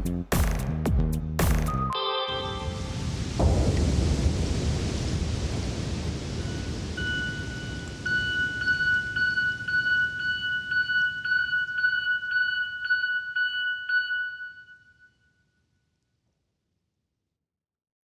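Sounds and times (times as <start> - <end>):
thunderstorm rumble and hiss: 2.6 - 11.8.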